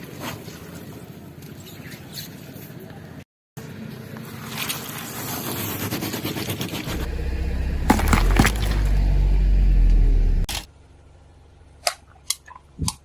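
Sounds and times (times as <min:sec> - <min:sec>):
car low rumble: 0:06.8 - 0:11.8
tyre crushing objects crackling: 0:06.9 - 0:09.3.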